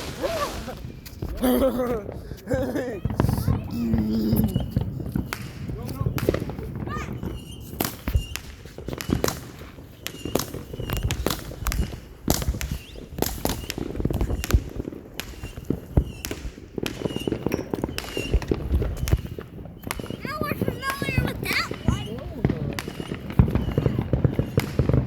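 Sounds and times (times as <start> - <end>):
fireworks bangs and crackling: 0.0 - 25.0.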